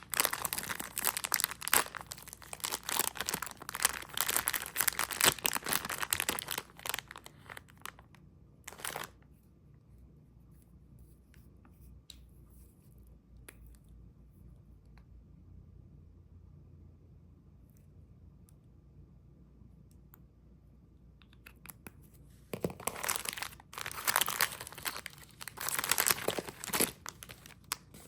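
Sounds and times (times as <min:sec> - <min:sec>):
candy wrapper crinkling: 0:00.0 - 0:09.2, 0:22.6 - 0:28.0.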